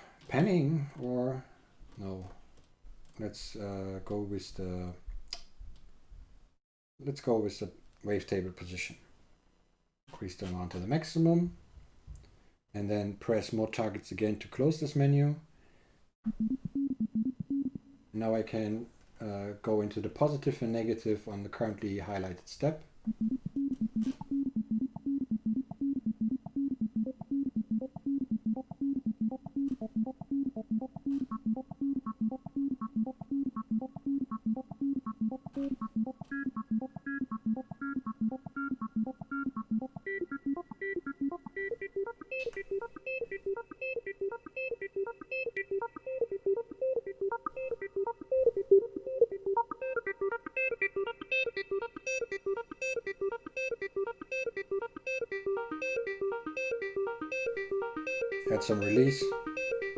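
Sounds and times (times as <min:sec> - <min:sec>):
synthesizer sequenced pattern: 0:16.3 - 0:17.9, 0:23.0 - 0:59.9.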